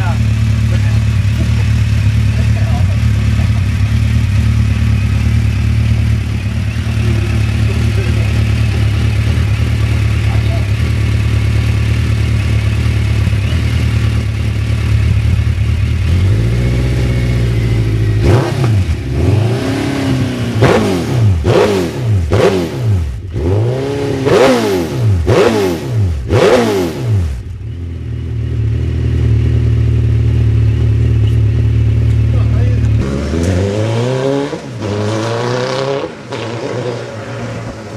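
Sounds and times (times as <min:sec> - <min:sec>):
motorcycle engine idling and revving: 0:00.0 - 0:37.9.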